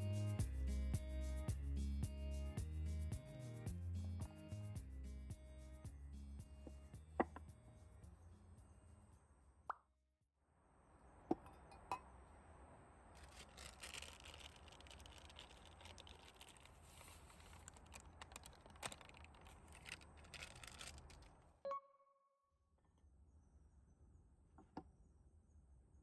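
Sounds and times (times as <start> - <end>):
soft rustling with crackling clicks: 13.2 - 21.6.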